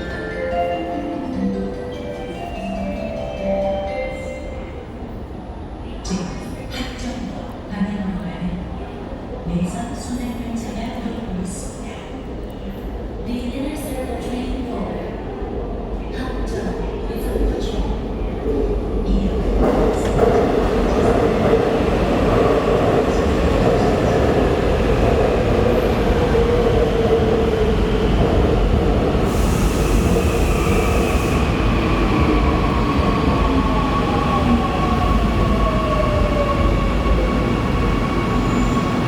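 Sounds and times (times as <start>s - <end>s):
train wheels rumbling on rail: 16.3s - 39.0s.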